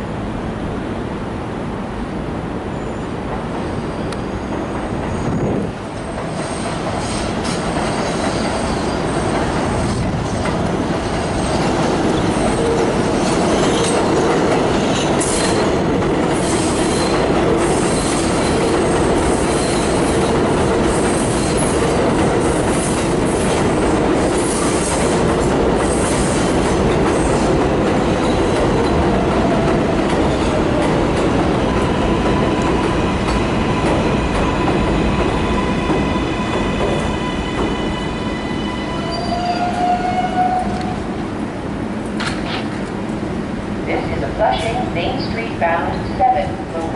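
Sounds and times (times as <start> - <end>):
train running on rails: 0.0 - 46.9
steel wheels squealing: 2.8 - 10.0, 37.0 - 40.7.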